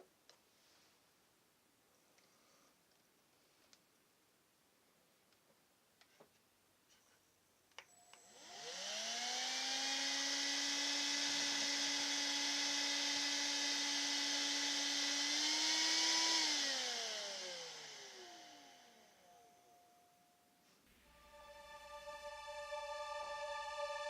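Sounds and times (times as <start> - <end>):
vacuum cleaner motor whine: 7.9 - 20.4.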